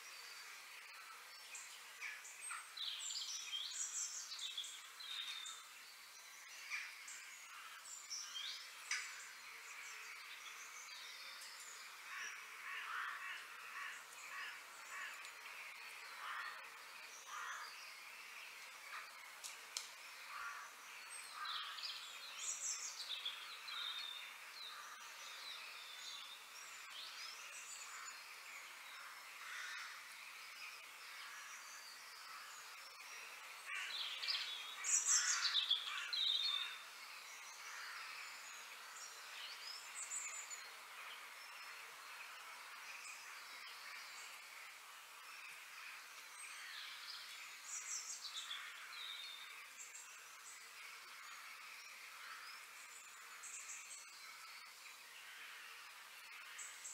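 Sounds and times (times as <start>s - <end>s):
wild birds chirping and calling: 0.1s - 56.9s.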